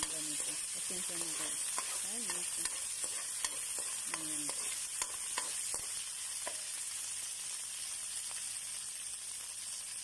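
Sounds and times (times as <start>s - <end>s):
spoon scraping a pan: 0.0s - 6.8s
garlic sizzling in hot oil: 0.0s - 10.0s.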